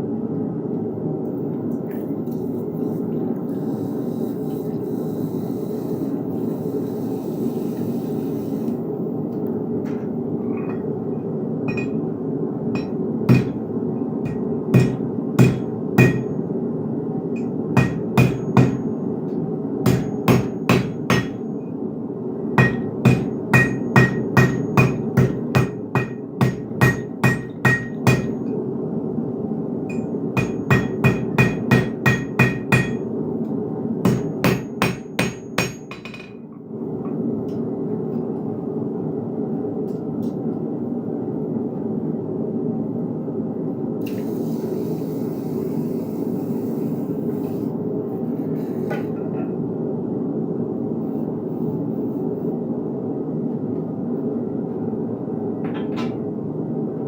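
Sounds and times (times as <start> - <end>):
hammer striking iron on anvil: 11.7 - 12.0, 12.8 - 13.7, 14.3 - 16.4, 17.4 - 18.9, 19.9 - 21.4, 22.6 - 28.4, 29.9 - 33.0, 34.1 - 36.4.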